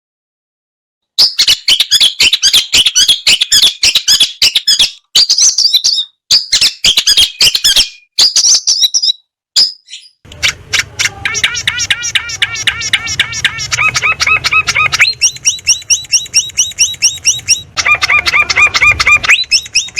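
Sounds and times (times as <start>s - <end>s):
songbird chirping: 1.2s - 19.9s
low hum: 10.3s - 19.9s.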